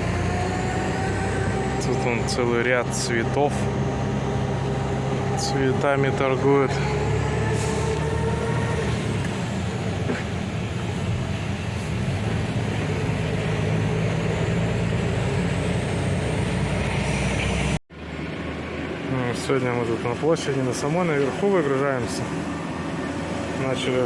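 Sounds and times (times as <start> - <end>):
diesel truck engine running: 0.0 - 24.0
road noise: 0.0 - 24.0.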